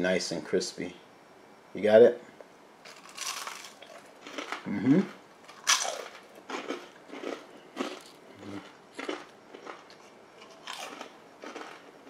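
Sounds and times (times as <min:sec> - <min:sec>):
crunching onion ring: 0:02.9 - 0:12.0.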